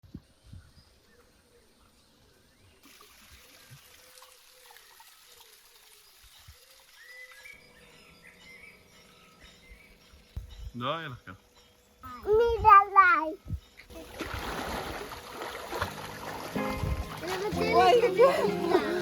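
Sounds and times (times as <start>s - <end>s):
trickling water: 2.8s - 8.0s, 13.9s - 19.0s.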